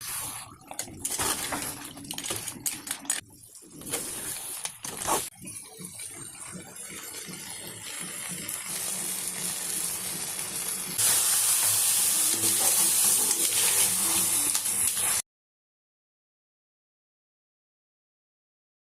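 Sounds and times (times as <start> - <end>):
food sizzling in a pan: 8.6 - 15.2.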